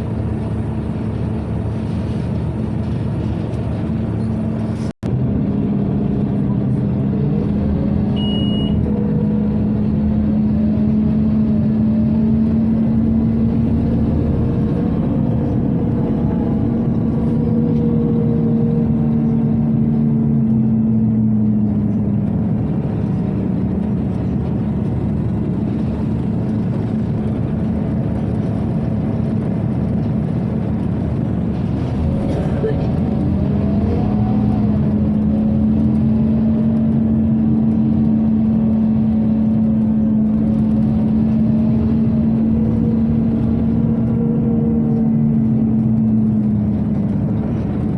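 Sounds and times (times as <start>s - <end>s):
bus engine and ventilation: 0.0s - 47.9s
short high beep: 8.2s - 8.8s.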